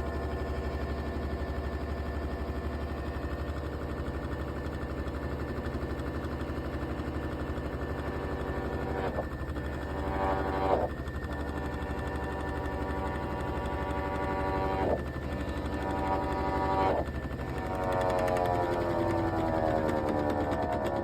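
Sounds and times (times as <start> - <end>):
motor hum: 0.0 - 21.0
rising and falling whine: 7.4 - 21.0.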